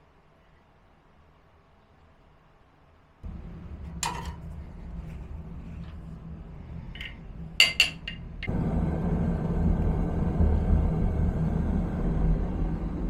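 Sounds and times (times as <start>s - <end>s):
low steady hum: 3.2s - 13.0s
metallic knocks: 3.8s - 4.7s, 7.0s - 8.5s.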